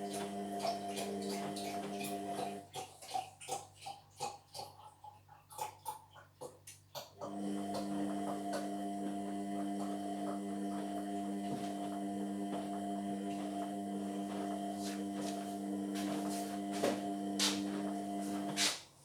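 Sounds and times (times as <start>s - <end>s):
washing machine humming: 0.0s - 4.6s, 7.2s - 19.0s.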